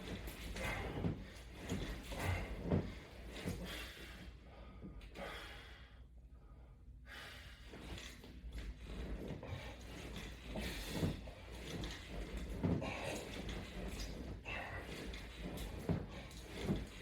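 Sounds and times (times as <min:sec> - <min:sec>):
man breathing hard: 0:03.6 - 0:07.8.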